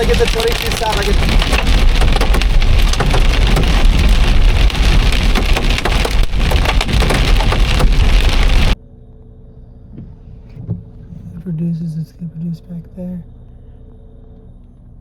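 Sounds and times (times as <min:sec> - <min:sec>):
heavy rain on car roof: 0:00.0 - 0:08.8.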